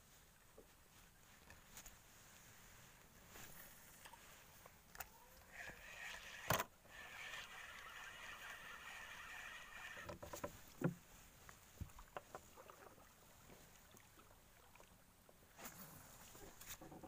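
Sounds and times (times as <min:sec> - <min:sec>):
faint reel whirring: 0:04.8 - 0:10.9.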